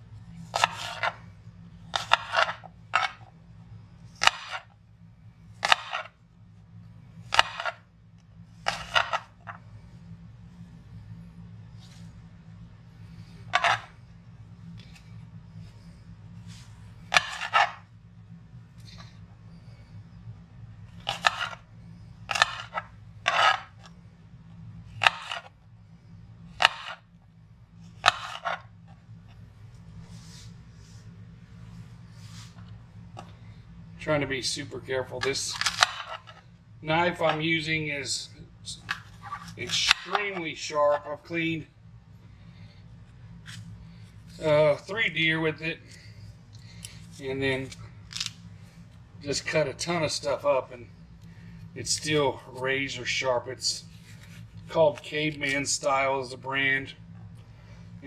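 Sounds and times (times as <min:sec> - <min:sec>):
low steady hum: 0:00.0 - 0:58.0
knife slicing apples on cutting board: 0:00.5 - 0:01.2, 0:01.9 - 0:03.1, 0:04.2 - 0:04.6, 0:05.6 - 0:06.1, 0:07.3 - 0:07.8, 0:08.6 - 0:09.3, 0:17.1 - 0:17.8, 0:21.0 - 0:21.6, 0:22.3 - 0:23.6, 0:25.0 - 0:25.5, 0:26.6 - 0:27.0, 0:28.0 - 0:28.6, 0:38.9 - 0:40.4.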